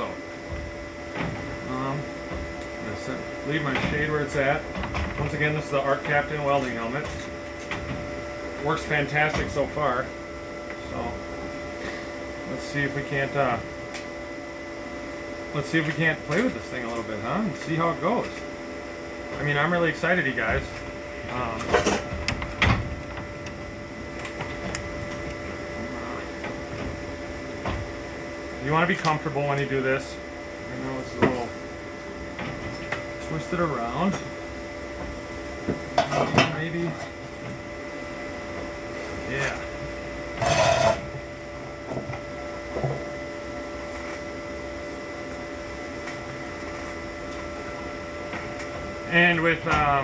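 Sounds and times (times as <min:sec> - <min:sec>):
steady machine hum: 0:00.0 - 0:50.0.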